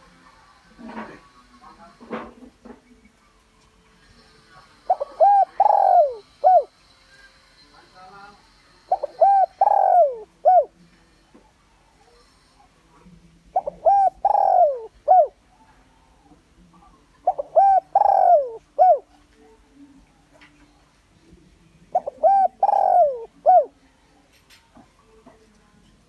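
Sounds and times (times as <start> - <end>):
dove cooing: 4.8 - 6.8, 8.8 - 10.8, 13.5 - 19.3, 21.9 - 23.8.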